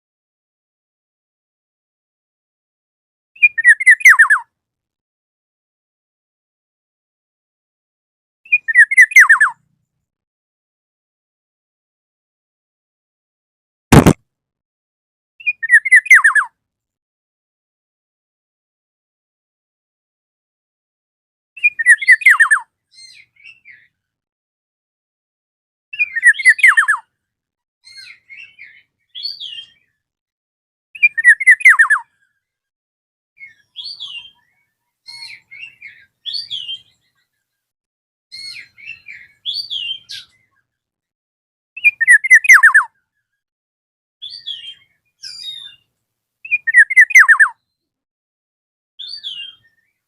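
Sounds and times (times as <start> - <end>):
bird singing fluty whistles: 21.6 - 22.6, 31.0 - 32.0, 41.8 - 42.9, 46.5 - 47.6.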